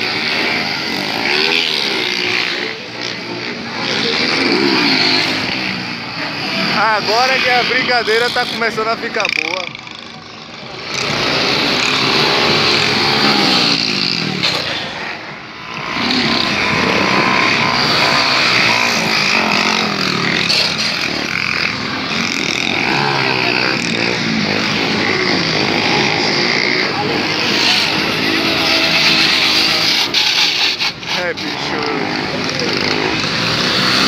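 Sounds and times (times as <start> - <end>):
small motorcycle engines revving: 0.0 - 34.0.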